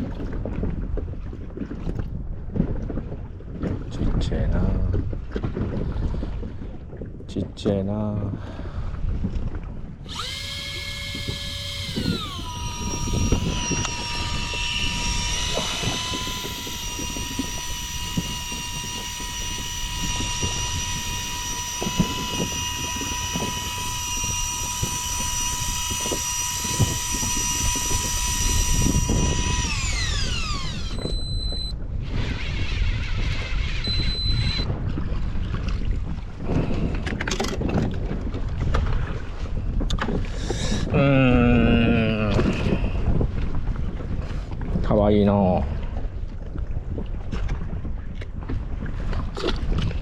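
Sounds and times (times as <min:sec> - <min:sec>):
small electric motor whining: 0:10.0 - 0:34.7
short high electronic beep: 0:30.9 - 0:31.7, 0:33.8 - 0:34.7.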